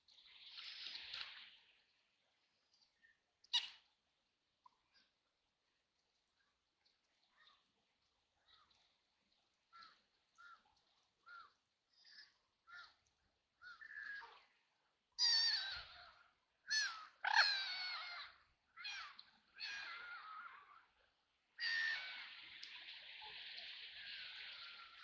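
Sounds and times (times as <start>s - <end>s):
steady hiss of water or rain: 0.0s - 3.1s, 20.6s - 25.0s.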